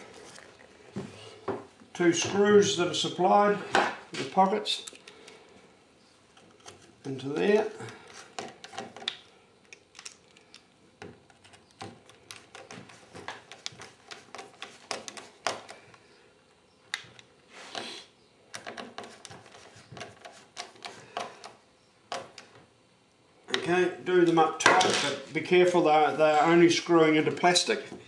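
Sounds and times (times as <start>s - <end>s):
small parts clicking and tapping: 8.4s - 16.0s.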